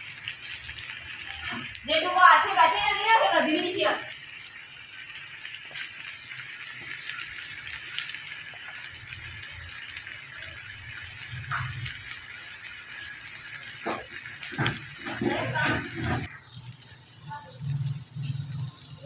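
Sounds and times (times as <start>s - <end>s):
okra sizzling in oil: 0.0s - 19.0s.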